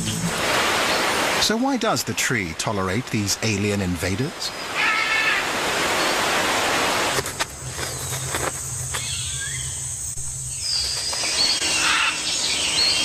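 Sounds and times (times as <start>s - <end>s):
faint bird calls: 4.5s - 6.2s, 10.5s - 13.0s
high insect drone: 7.2s - 13.0s.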